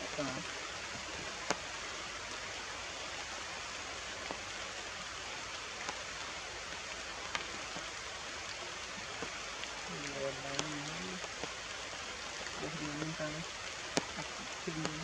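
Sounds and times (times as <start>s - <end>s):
steady rain falling: 0.0s - 15.0s
sharp drips: 8.8s - 15.0s.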